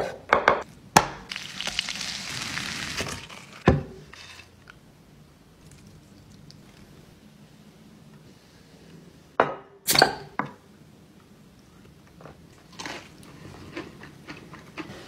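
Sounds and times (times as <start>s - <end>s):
chewing crunch: 12.6s - 15.0s.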